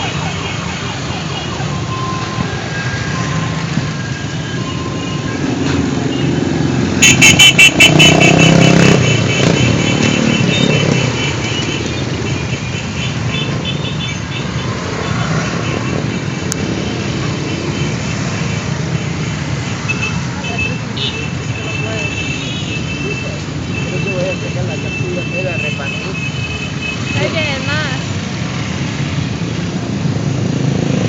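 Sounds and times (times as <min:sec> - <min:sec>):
motorcycles passing: 0:00.0 - 0:31.0
horn short beeps: 0:07.0 - 0:11.8.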